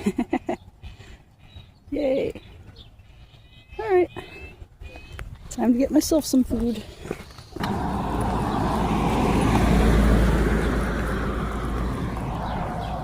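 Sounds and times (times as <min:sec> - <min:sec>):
car driving past: 0:07.6 - 0:13.0.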